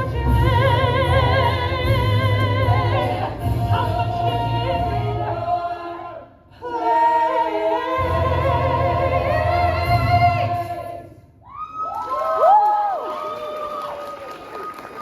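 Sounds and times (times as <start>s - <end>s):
cast singing with band: 0.0s - 11.1s.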